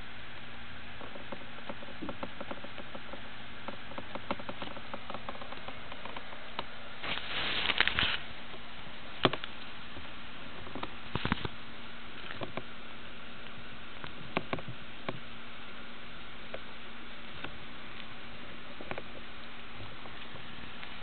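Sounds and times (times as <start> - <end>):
rustling: 1.0 - 12.7.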